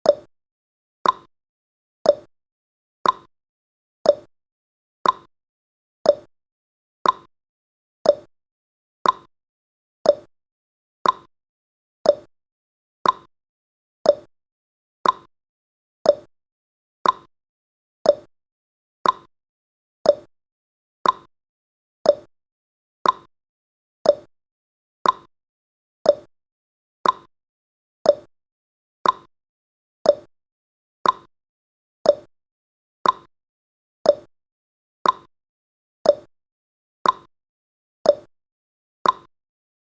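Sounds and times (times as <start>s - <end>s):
clock ticking: 3.0s - 3.3s, 5.0s - 5.3s, 7.0s - 7.3s, 9.0s - 9.3s, 11.0s - 11.3s, 13.0s - 13.3s, 15.0s - 15.3s, 16.1s - 16.3s, 17.0s - 17.3s, 19.0s - 19.3s, 21.0s - 21.3s, 22.1s - 22.3s, 23.0s - 23.3s, 24.1s - 24.3s, 25.0s - 25.3s, 26.1s - 26.3s, 27.0s - 27.3s, 28.1s - 28.3s, 29.0s - 29.3s, 30.1s - 30.3s, 31.0s - 31.3s, 32.1s - 32.3s, 33.0s - 33.3s, 34.1s - 34.3s, 35.0s - 35.3s, 36.1s - 36.3s, 37.0s - 37.3s, 38.1s - 38.3s, 39.0s - 39.3s.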